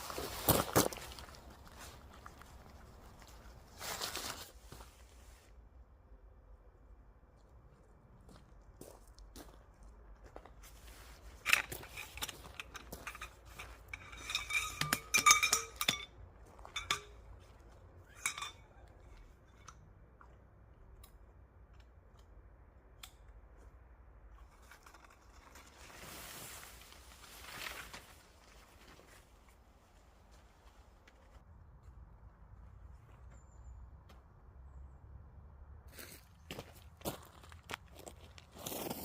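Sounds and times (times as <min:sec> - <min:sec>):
metal cookware clinking and clattering: 0:11.9 - 0:16.1, 0:16.7 - 0:17.2, 0:18.1 - 0:18.8.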